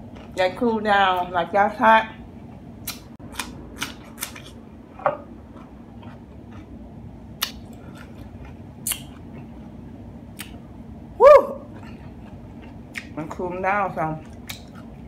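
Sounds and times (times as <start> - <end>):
cucumber crunching when bitten: 2.8 - 4.6, 7.4 - 9.3, 14.2 - 14.9.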